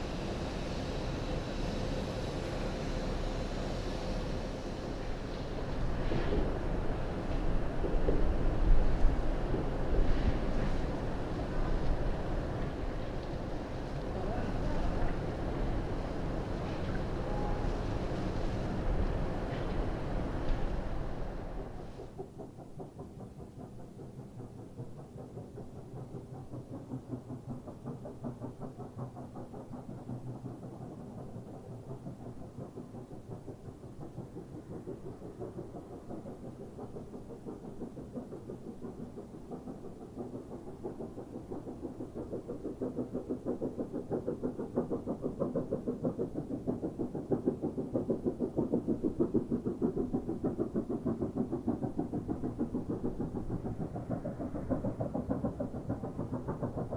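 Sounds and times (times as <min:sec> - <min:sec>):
steam locomotive exhaust beats: 0:00.0 - 0:56.9.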